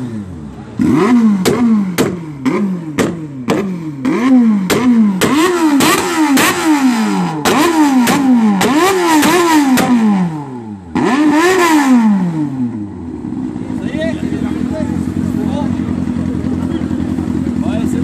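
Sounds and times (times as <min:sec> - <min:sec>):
motorcycle engine revving in blips: 0:00.0 - 0:18.0.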